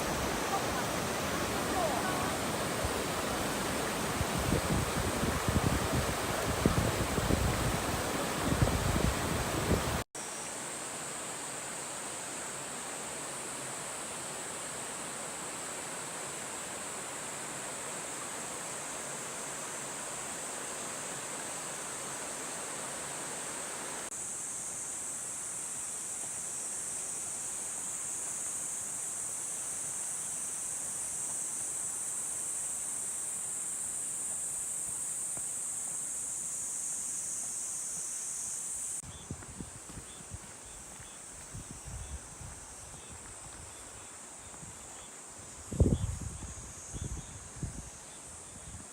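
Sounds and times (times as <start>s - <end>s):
stream rushing over rocks: 0.0s - 24.1s
high insect drone: 0.0s - 48.9s.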